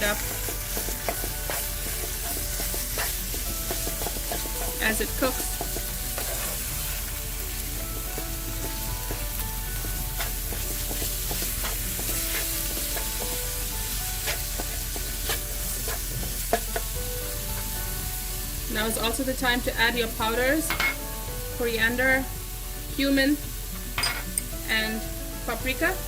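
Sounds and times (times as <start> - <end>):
spatula scraping and tapping pan: 0.0 - 7.1, 7.8 - 17.0
meat sizzling in oil: 0.0 - 26.0.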